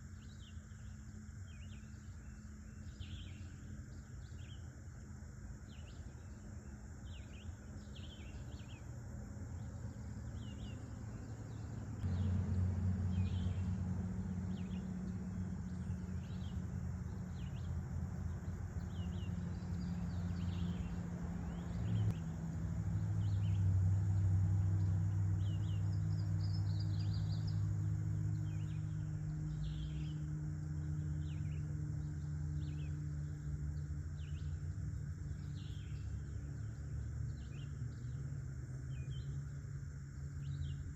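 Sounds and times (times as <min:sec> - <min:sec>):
high insect buzz: 0:00.0 - 0:40.9
low steady drone: 0:00.0 - 0:40.9
birds chirping: 0:05.6 - 0:38.2.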